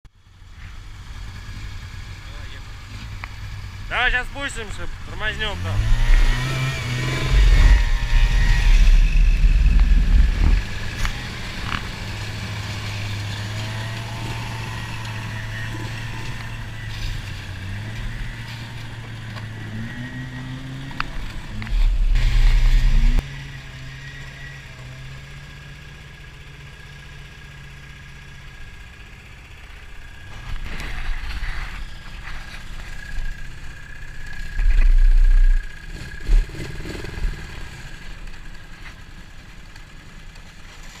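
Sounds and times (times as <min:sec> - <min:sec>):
snowmobile engine running: 0:00.5 - 0:25.4, 0:29.9 - 0:41.0
loud low rumbles: 0:04.7 - 0:12.6, 0:13.6 - 0:23.2, 0:34.3 - 0:36.5.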